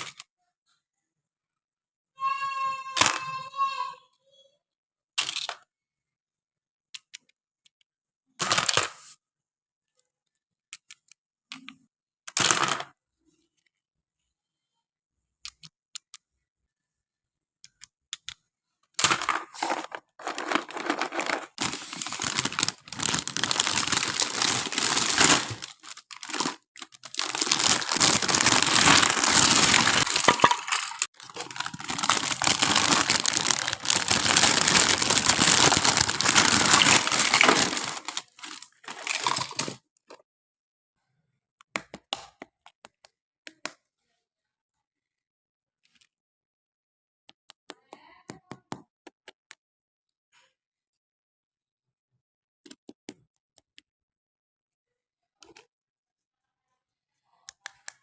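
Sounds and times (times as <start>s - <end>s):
packaging rustling and clicking: 19.0s - 39.8s
plastic wrapping crinkling and tearing: 19.5s - 39.8s.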